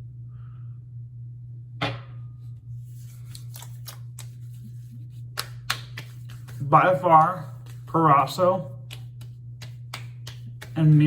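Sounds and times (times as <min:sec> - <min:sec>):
steady low hum: 0:00.0 - 0:11.0
hands patting skin: 0:02.9 - 0:11.0.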